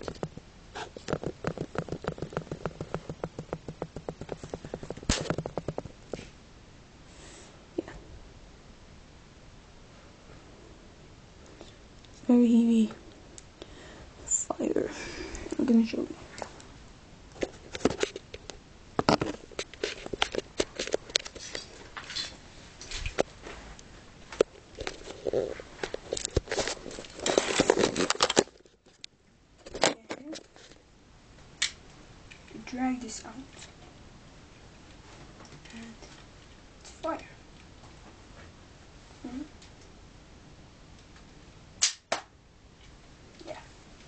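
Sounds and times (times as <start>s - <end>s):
plastic parts clicking and rattling: 24.8s - 28.8s
loud plastic snap: 41.8s - 42.3s.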